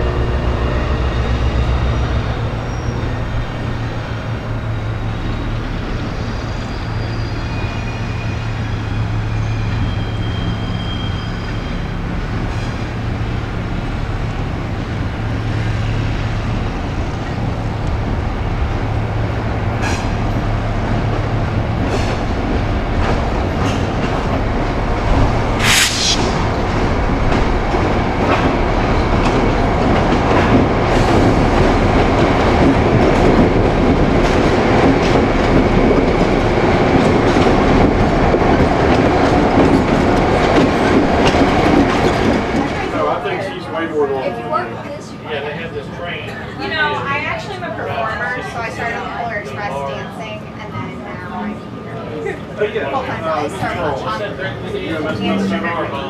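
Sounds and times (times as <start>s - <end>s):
diesel train drone: 0.0s - 10.8s, 11.9s - 42.8s, 54.5s - 56.0s.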